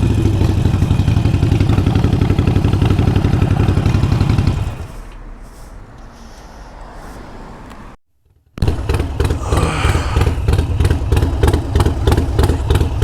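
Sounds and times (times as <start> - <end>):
motorcycle engine idling: 0.0 - 5.0, 8.6 - 13.0.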